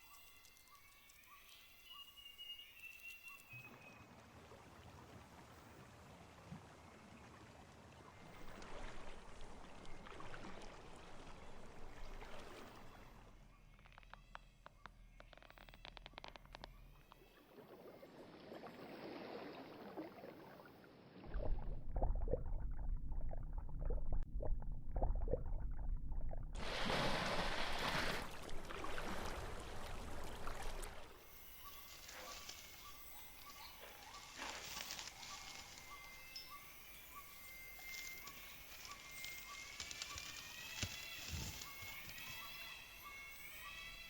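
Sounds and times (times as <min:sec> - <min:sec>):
rising whistled call: 0:01.5 - 0:04.0
low rumbling noise: 0:21.3 - 0:27.4.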